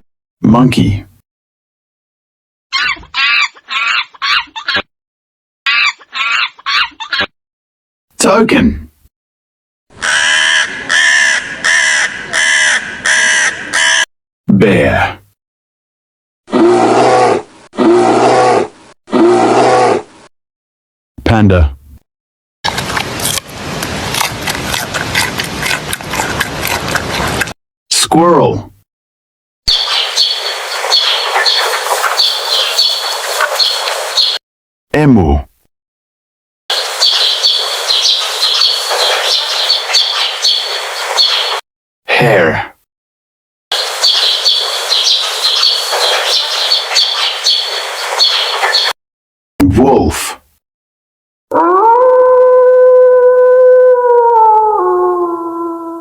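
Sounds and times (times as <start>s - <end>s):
monkey chattering calls: 2.7s - 4.8s, 5.7s - 7.3s, 29.7s - 34.4s, 36.7s - 41.6s, 43.8s - 48.9s
panda chewing with crunching bites: 22.7s - 27.6s.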